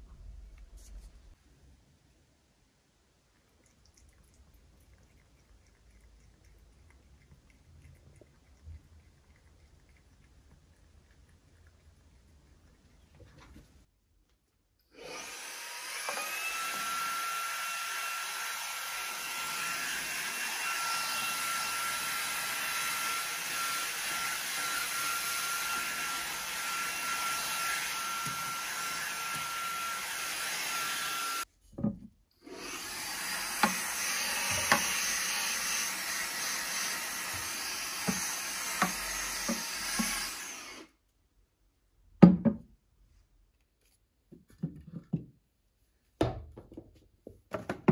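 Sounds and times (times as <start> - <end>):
vacuum cleaner whining: 15.0 - 31.5, 32.4 - 40.9.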